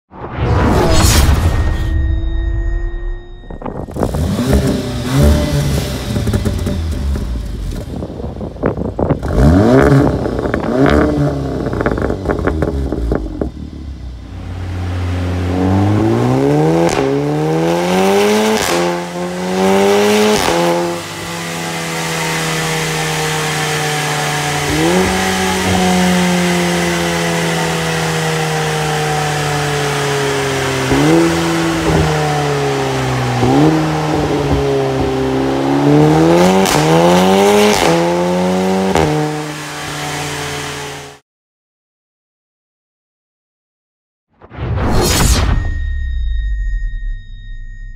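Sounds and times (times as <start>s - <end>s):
car engine revving and accelerating: 3.9s - 41.2s.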